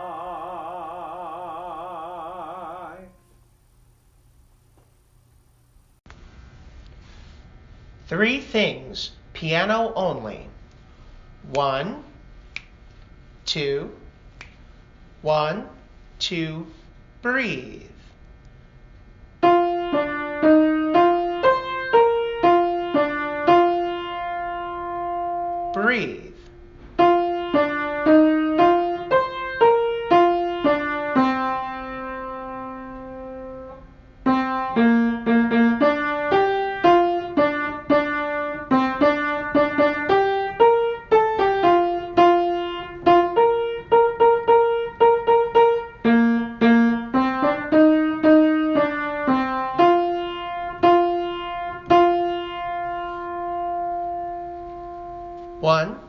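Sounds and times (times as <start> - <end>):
solo piano melody: 19.4 - 25.8, 27.0 - 55.6.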